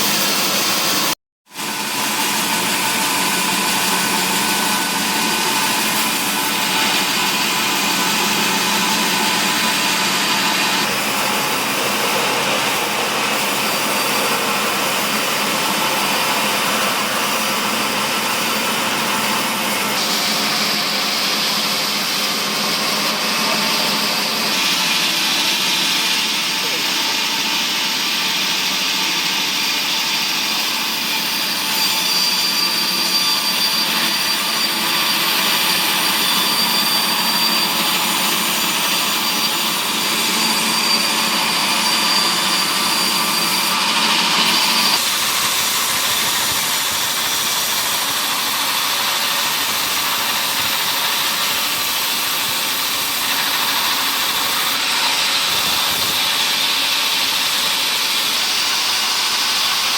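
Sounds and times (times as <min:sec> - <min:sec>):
machine whining tone: 0:00.0 - 0:59.9
wood-processing machinery running: 0:00.0 - 0:59.9.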